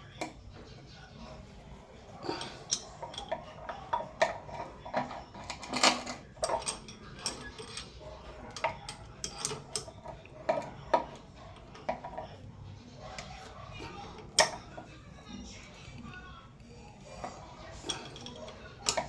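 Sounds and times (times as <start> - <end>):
hand tools clicking and knocking: 2.3 - 12.2, 13.2 - 14.9, 17.2 - 19.0.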